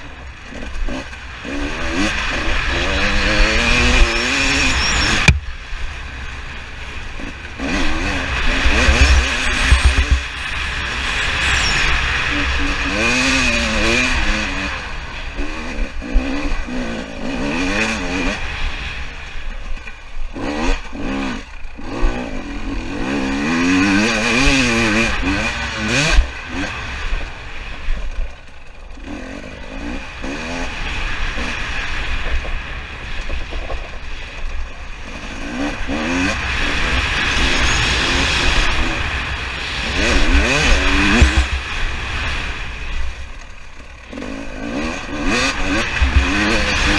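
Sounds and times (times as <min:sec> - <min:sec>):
dirt bike engine revving: 0:00.0 - 0:46.9
wind on microphone: 0:08.5 - 0:14.1, 0:36.0 - 0:42.9.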